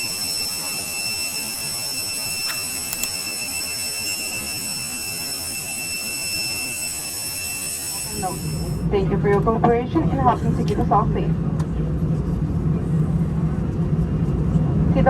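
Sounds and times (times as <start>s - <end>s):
cabin high-pitched whine: 0.0s - 11.5s.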